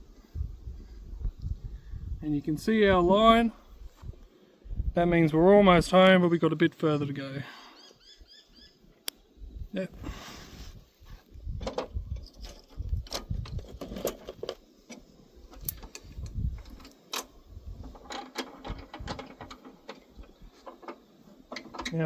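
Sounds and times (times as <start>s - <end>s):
wrench clicking and clunking on metal: 11.6s - 22.0s.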